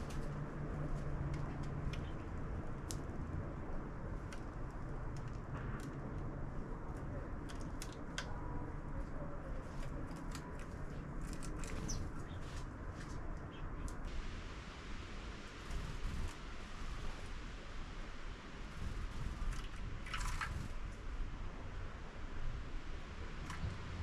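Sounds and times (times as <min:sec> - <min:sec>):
steady low rumble: 0:00.0 - 0:24.0
sparrows chirping: 0:11.5 - 0:12.6.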